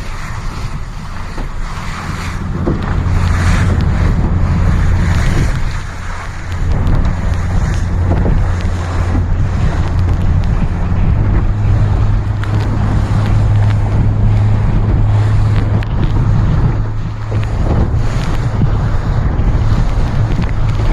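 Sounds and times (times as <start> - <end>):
water splashing along hull: 0.0 - 20.9
wind buffeting microphone: 0.0 - 20.9.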